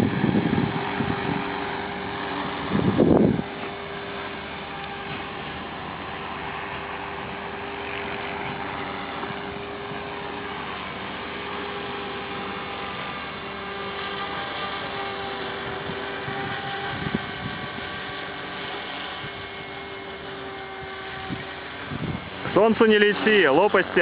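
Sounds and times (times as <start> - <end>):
wind noise: 0.0 - 1.8, 2.4 - 3.7, 15.6 - 18.2, 20.8 - 22.6
rc helicopter motor and rotor whine: 0.0 - 24.0.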